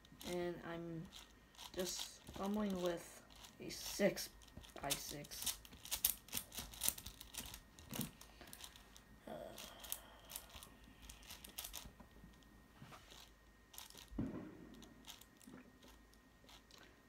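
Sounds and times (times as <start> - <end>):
puzzle cube clicking as turned: 1.0 - 8.8, 9.6 - 11.9.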